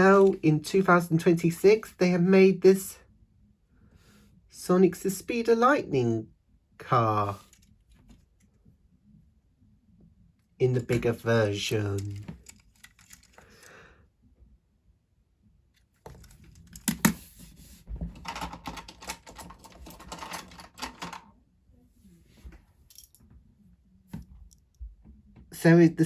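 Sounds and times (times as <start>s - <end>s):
plastic bricks clicking and rattling: 18.2s - 21.2s.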